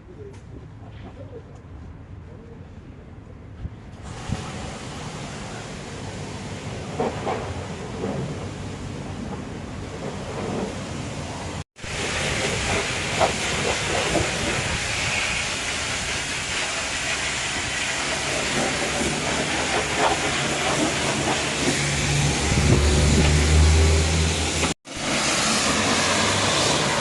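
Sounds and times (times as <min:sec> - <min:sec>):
pressure washer spraying water: 0:04.0 - 0:08.9, 0:11.8 - 0:27.0.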